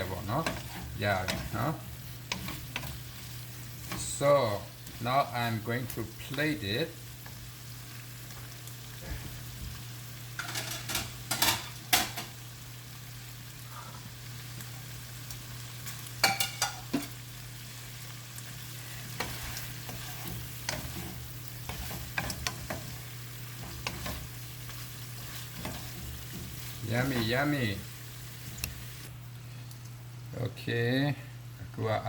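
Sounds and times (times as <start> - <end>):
faint sizzle: 0.0 - 32.0
metal spatula scraping a wok: 19.1 - 23.0, 23.6 - 27.3.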